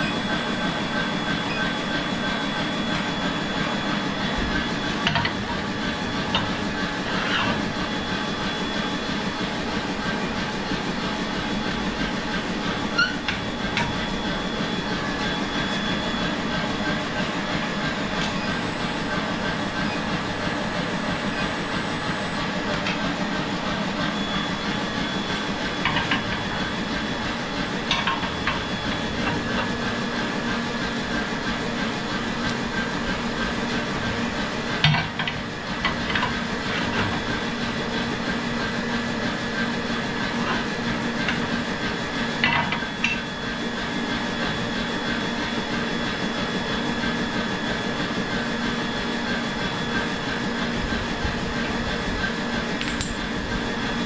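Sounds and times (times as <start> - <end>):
workshop machinery droning: 0.0 - 54.0
metal knocks and clinks: 52.8 - 53.3.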